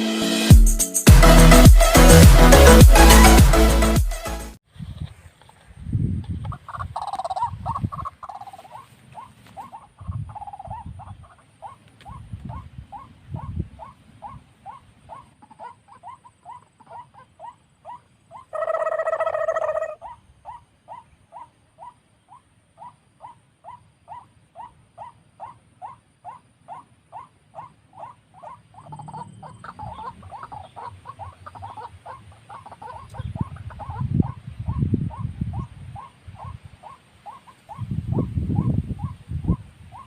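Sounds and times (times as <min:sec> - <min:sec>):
wind rumbling on microphone: 0:04.7 - 0:08.2, 0:09.9 - 0:11.4, 0:12.0 - 0:15.2, 0:29.7 - 0:37.0, 0:37.6 - 0:40.0
waterhen calls: 0:06.2 - 0:40.0.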